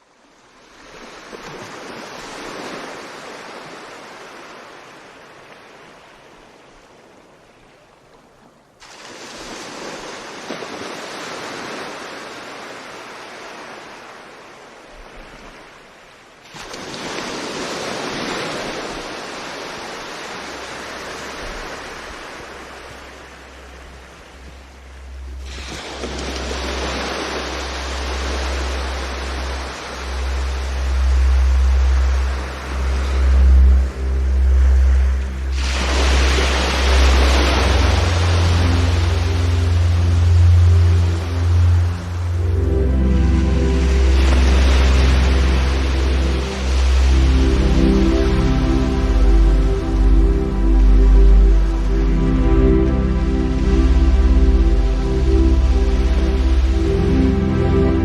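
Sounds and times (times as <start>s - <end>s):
ocean waves rushing: 0.0s - 7.6s, 8.8s - 58.0s
wind: 0.0s - 58.0s
low rumble: 23.2s - 58.0s.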